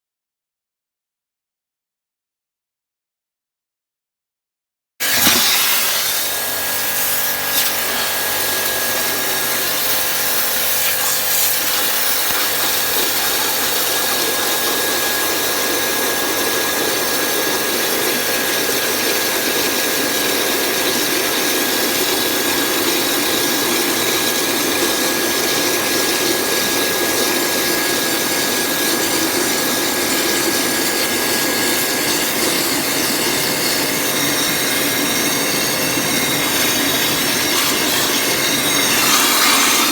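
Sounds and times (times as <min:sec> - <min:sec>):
pressure washer spraying into bucket: 0:05.0 - 0:24.0, 0:34.7 - 0:39.9.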